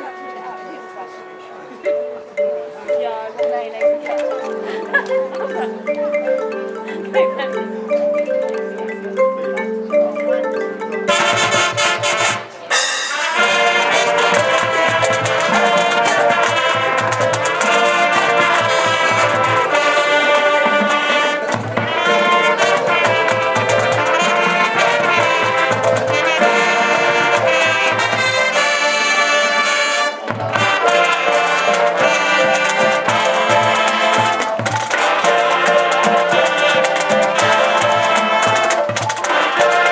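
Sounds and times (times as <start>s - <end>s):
marching band brass and drums: 0.0s - 2.2s, 11.1s - 39.9s
mallet percussion figure: 0.0s - 39.9s.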